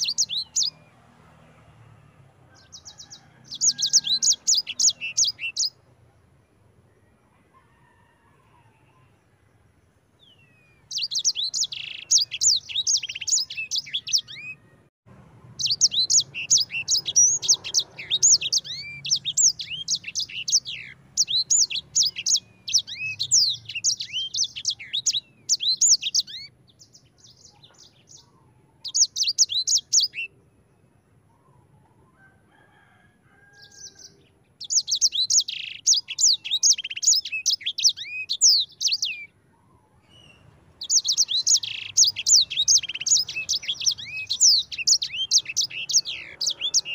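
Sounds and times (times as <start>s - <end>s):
songbird twittering: 0.0s - 0.9s, 2.5s - 5.8s, 10.2s - 14.7s, 15.6s - 30.4s, 33.5s - 46.9s.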